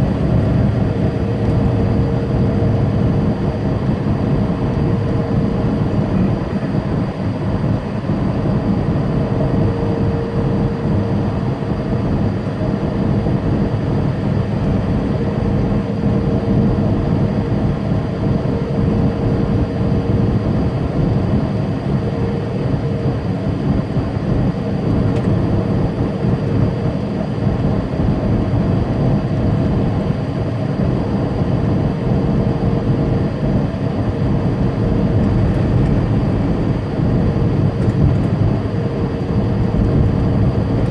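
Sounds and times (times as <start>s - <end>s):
diesel truck engine drone: 0.0s - 40.9s
faint steady whine: 0.0s - 40.9s.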